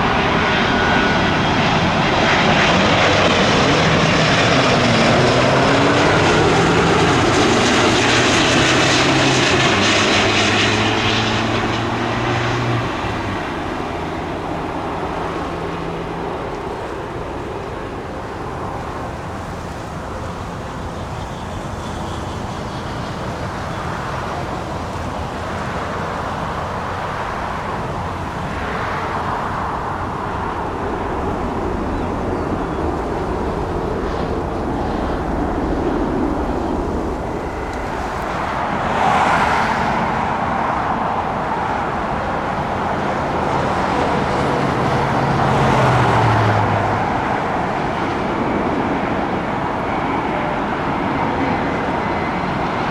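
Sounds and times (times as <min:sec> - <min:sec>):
engine rumble: 0:00.0 - 0:52.9
low tone dropping in pitch: 0:30.8 - 0:40.2.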